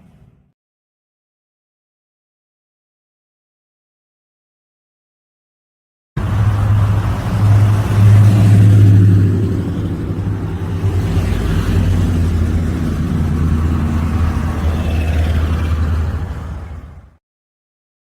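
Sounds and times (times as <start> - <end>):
car engine exhaust rumble: 6.2 - 16.2.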